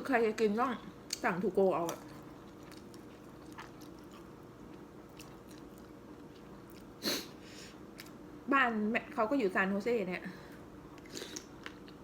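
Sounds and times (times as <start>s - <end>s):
steady low hum: 0.0s - 12.0s
chewing and mouth clicks: 1.1s - 6.9s.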